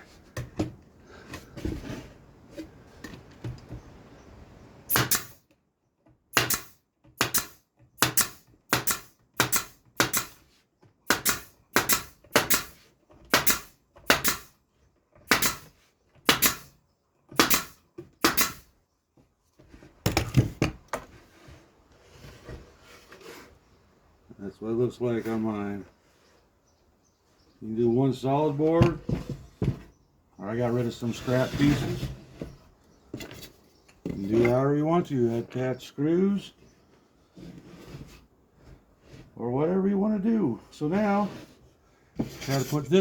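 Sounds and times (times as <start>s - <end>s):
handling of wood: 0.0s - 4.4s, 18.8s - 24.4s, 28.4s - 35.6s, 40.9s - 43.0s
nails driven into wood: 4.9s - 5.6s, 6.3s - 14.6s, 15.2s - 18.8s.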